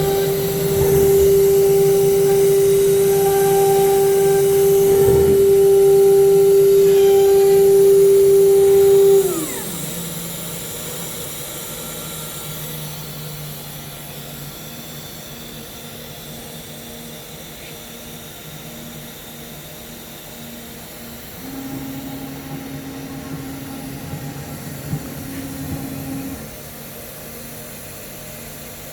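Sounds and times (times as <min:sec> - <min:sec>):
machine hum: 0:00.0 - 0:13.2, 0:21.0 - 0:26.9
router spindle whining: 0:00.0 - 0:13.8, 0:21.0 - 0:26.7.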